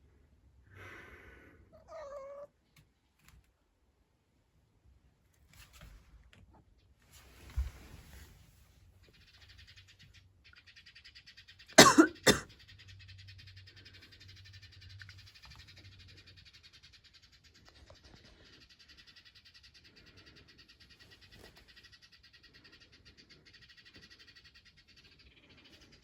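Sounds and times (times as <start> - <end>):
soft cat calls: 1.7 - 2.6.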